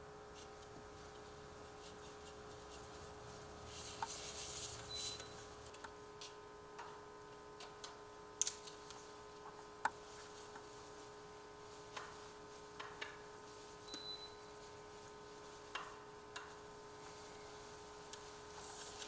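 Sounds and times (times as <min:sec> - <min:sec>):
faint rubbing: 0:01.8 - 0:05.2.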